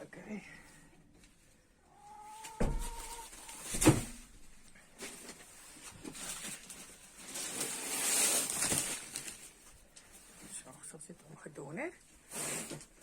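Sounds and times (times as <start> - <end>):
chicken calling: 1.8 - 3.7
knocks: 2.6 - 3.0.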